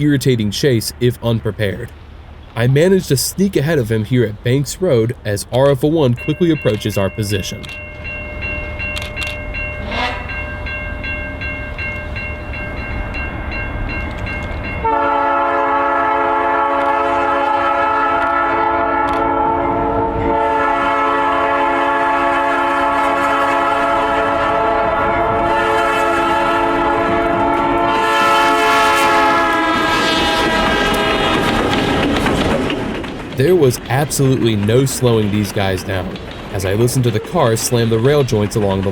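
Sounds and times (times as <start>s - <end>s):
crossing bell ringing: 4.9s - 15.7s
locomotive air horn blowing: 9.8s - 10.4s, 14.8s - 32.0s.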